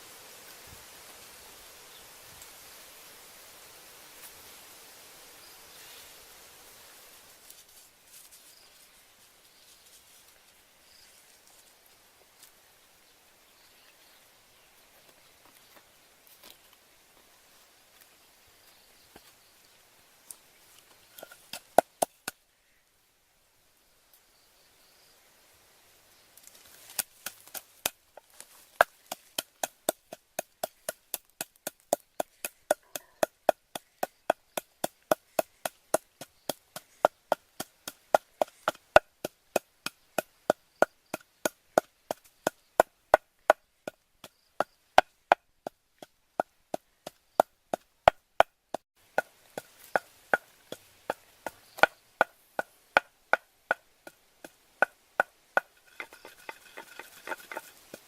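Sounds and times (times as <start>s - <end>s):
blade chopping wood: 26.9s - 44.0s, 46.0s - 58.0s.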